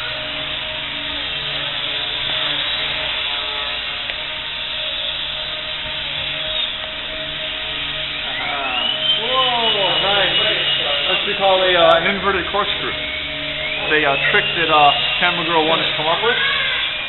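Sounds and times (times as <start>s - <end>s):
rc helicopter motor whine: 0.0s - 17.0s.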